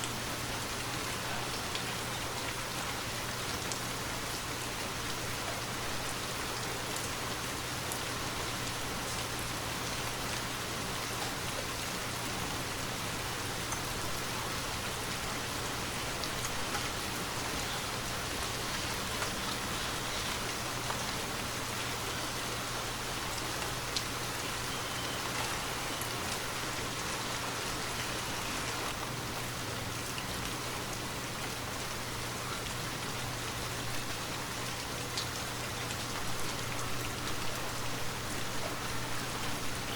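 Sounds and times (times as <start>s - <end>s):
rain hissing: 0.0s - 39.9s.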